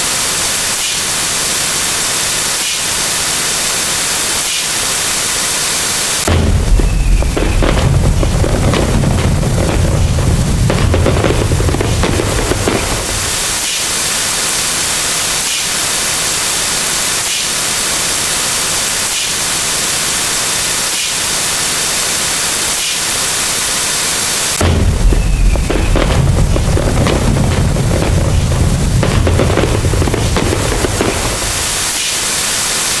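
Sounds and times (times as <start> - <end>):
loud static hiss: 0.0 - 33.0
deep booms: 6.3 - 13.4, 24.6 - 31.6
faint regular pulses: 6.3 - 13.6, 24.7 - 31.9.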